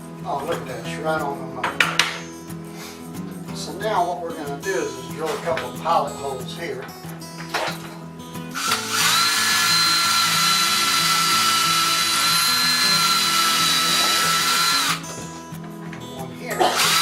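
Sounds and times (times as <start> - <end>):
electric drill whining: 8.5 - 15.3, 16.6 - 17.0.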